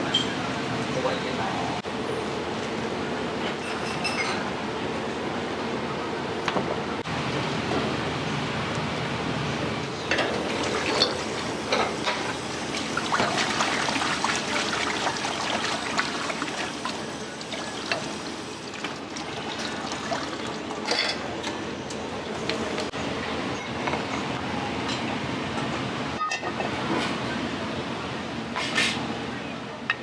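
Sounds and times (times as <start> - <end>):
utensils and dishes clinking: 0.0 - 0.4, 3.4 - 4.6, 10.0 - 22.9, 26.2 - 27.1
water running and splashing: 10.3 - 20.9.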